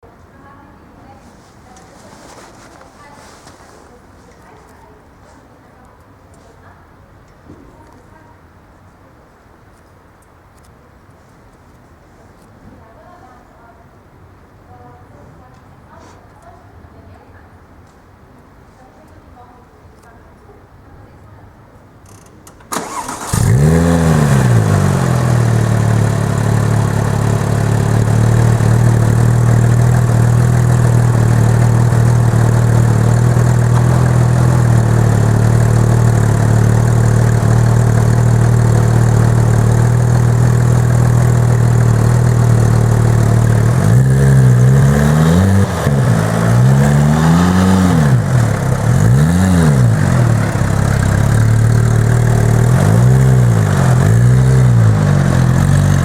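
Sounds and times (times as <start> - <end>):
car engine starting and idling: 22.1 - 56.0
car engine revving: 22.8 - 56.0.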